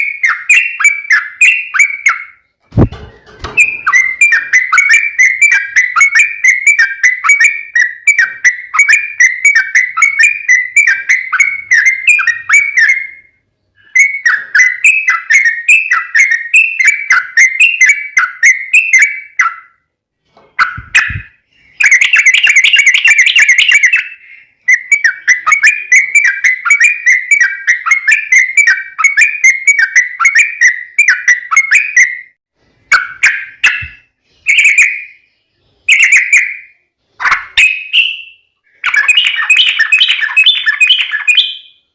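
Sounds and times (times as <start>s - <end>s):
bird song of bubbling notes: 0.0s - 19.9s, 20.6s - 41.9s.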